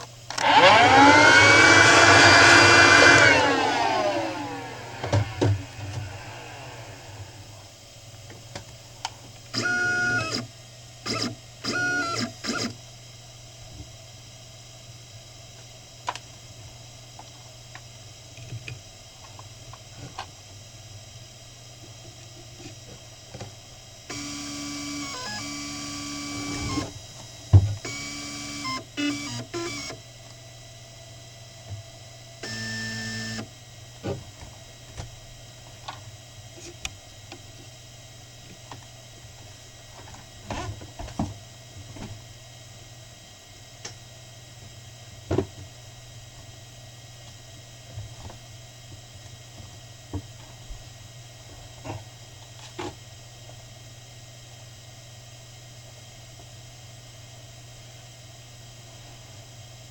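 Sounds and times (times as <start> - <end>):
spindle motor humming and whining: 0.0 - 7.8, 9.5 - 12.8, 21.0 - 37.7
mill motor hum with whining tones: 0.0 - 59.9
machine knocks and whirrs: 4.8 - 7.3.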